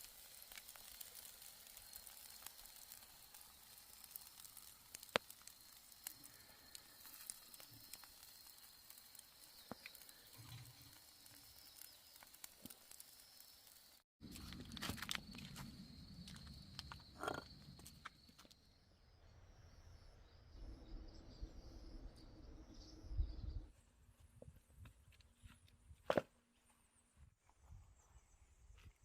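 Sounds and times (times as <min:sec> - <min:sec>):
faint wood fire crackling: 0:00.0 - 0:18.6.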